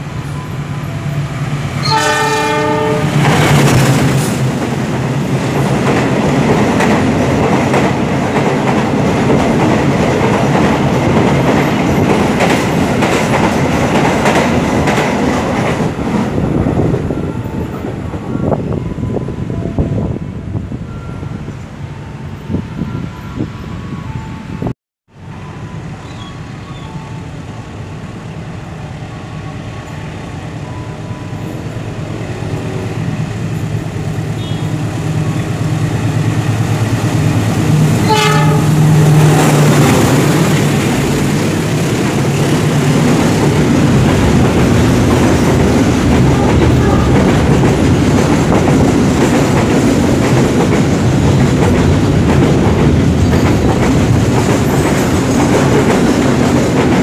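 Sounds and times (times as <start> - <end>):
train wagons rumbling and clacking: 0.0 - 57.0
train horn blast: 1.8 - 3.4, 34.3 - 35.4, 37.7 - 40.2, 46.3 - 47.5
locomotive hum: 25.2 - 57.0.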